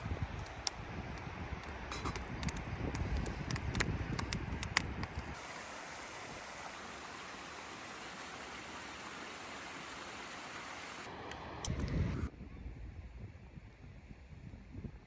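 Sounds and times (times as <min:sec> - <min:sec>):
sharp clicks and crackles: 0:00.0 - 0:05.4.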